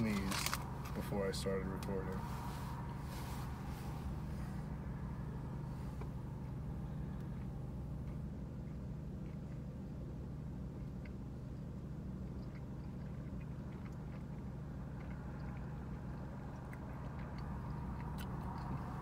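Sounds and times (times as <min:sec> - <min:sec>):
car engine idling: 0:00.0 - 0:19.0
chewing clicks: 0:07.2 - 0:09.8, 0:10.7 - 0:19.0.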